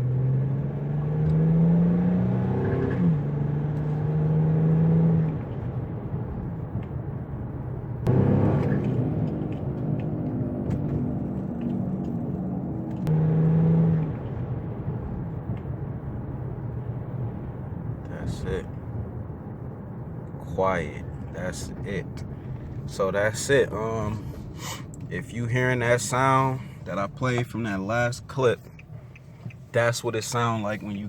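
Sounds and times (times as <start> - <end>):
car engine pulling hard: 0.0 - 19.2
road noise: 0.0 - 31.0.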